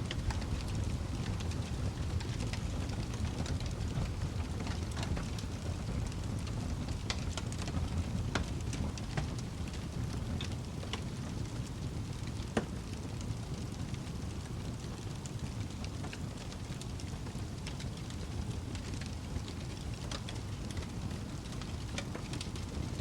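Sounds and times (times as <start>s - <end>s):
fire pops and crackles: 0.0s - 23.0s
flames rumbling: 0.0s - 23.0s.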